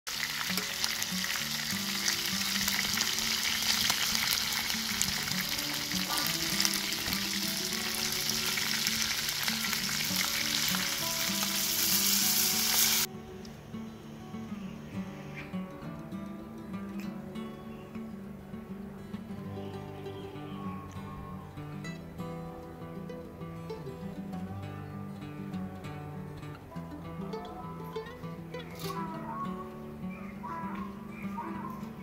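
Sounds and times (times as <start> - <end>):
food sizzling in hot oil: 0.1 - 13.1.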